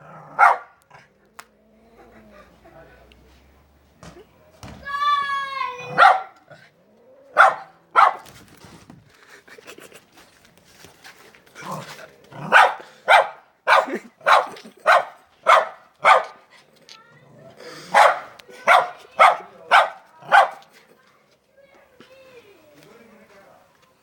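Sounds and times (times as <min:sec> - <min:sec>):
dog barking: 0:00.3 - 0:00.8, 0:05.9 - 0:06.4, 0:07.3 - 0:08.3, 0:12.4 - 0:16.4, 0:17.9 - 0:20.7.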